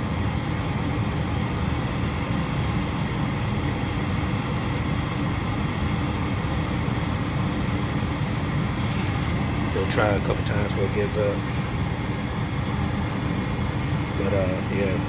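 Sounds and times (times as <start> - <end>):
gas furnace running: 0.0 - 15.0.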